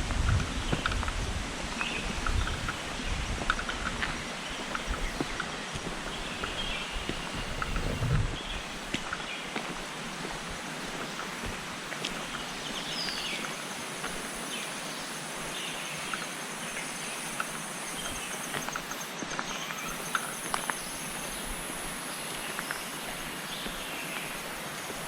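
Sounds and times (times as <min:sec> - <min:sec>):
high insect drone: 0:00.0 - 0:25.0
rushing water: 0:00.0 - 0:25.0
bird chirps: 0:14.6 - 0:21.5.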